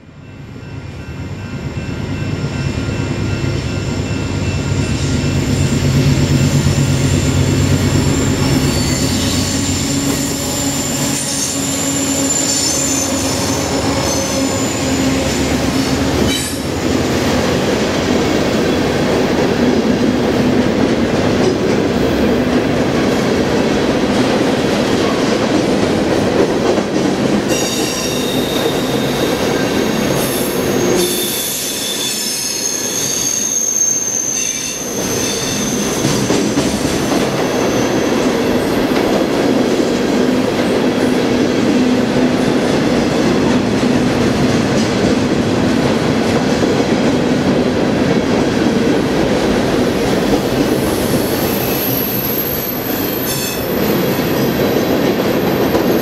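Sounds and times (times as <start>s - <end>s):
freight cars wheel-on-rail noise: 0.0s - 56.0s
diesel locomotives rumbling: 0.4s - 31.9s, 32.7s - 56.0s
high-pitched wheel squeal: 6.6s - 16.7s, 27.5s - 38.4s.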